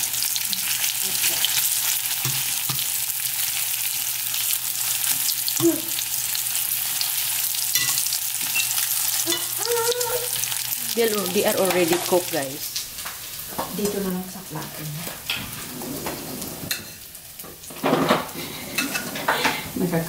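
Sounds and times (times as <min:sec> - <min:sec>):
ravioli sizzling in oil: 0:00.0 - 0:20.0
tongs clicking on pan: 0:01.4 - 0:03.0, 0:07.7 - 0:09.7.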